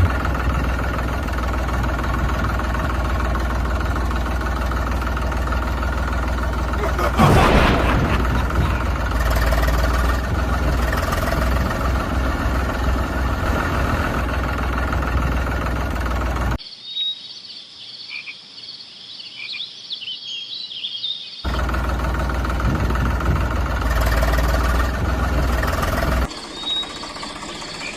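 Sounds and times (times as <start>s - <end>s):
small engine running: 0.0s - 16.6s, 21.5s - 27.9s
high chirping calls: 26.3s - 27.9s.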